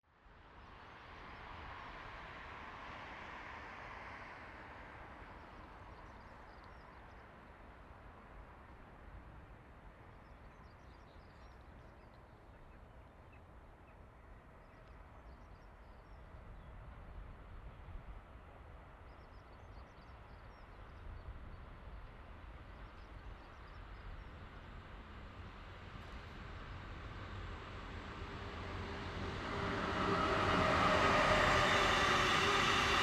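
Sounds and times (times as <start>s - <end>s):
freight train rumble: 22.2s - 33.0s.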